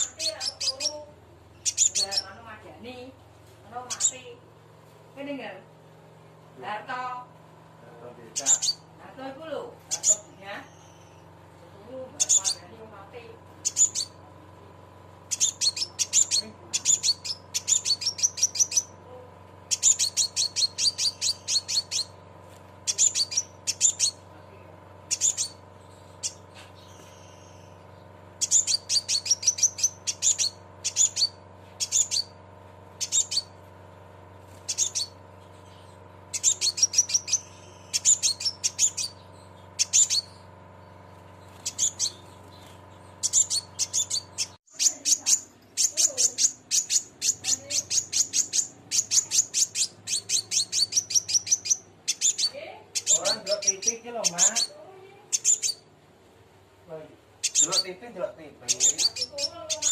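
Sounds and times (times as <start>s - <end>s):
bird metallic chips and trills: 0.0s - 2.6s, 8.4s - 8.9s, 12.0s - 12.8s, 13.6s - 14.2s, 15.3s - 19.0s, 19.6s - 22.2s, 22.8s - 24.2s, 25.0s - 33.6s, 34.4s - 55.9s, 57.4s - 58.1s, 58.7s - 59.9s
faint steady hum: 0.0s - 59.9s.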